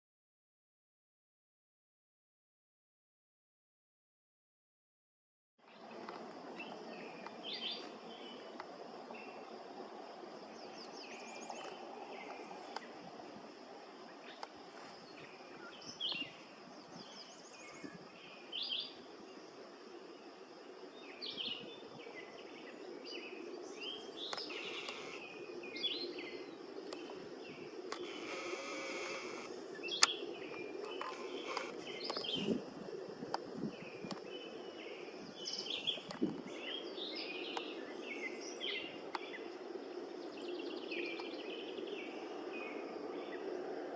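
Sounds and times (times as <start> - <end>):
birds chirping: 5.7 - 19.0, 21.0 - 33.1.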